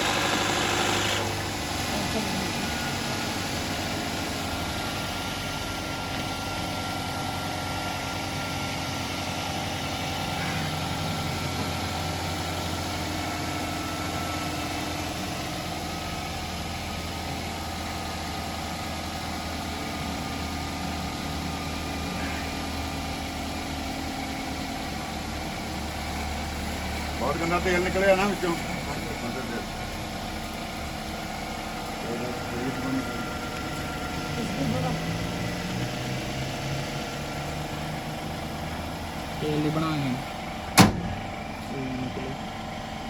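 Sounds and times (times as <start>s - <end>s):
car engine idling: 0.0s - 43.0s.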